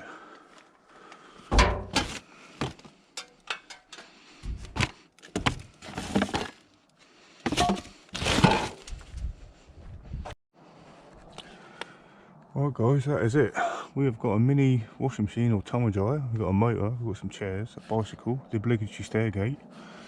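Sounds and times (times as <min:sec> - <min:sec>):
scrap metal and wood clattering: 0:01.5 - 0:06.7, 0:07.4 - 0:08.9.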